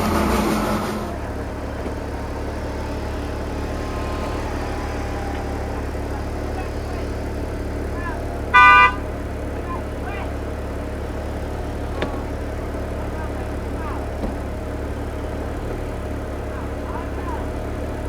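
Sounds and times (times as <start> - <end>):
car engine idling: 0.0 - 18.0
loud horn-like beep: 8.5 - 9.1.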